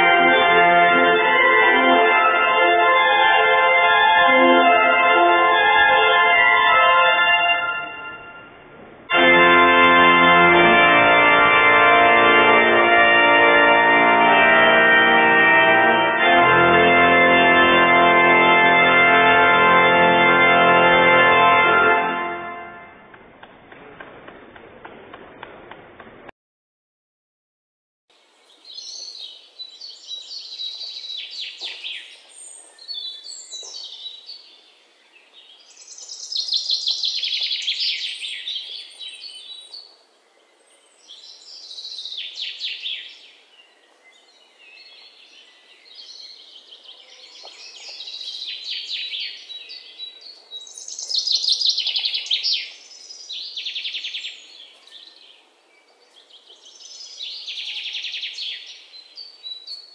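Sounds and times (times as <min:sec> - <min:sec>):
faint background hiss: 0:28.1 - 0:57.6
songbirds chirping: 0:28.1 - 0:59.9.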